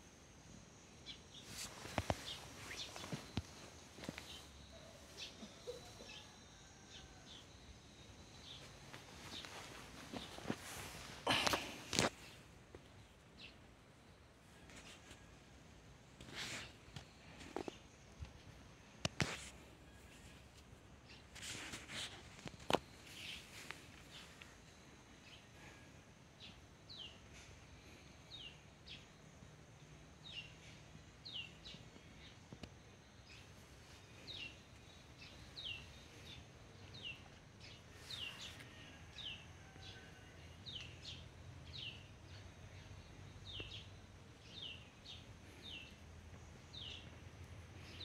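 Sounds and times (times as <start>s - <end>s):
background noise: 0.0s - 48.0s
small bird chirping: 0.9s - 12.4s.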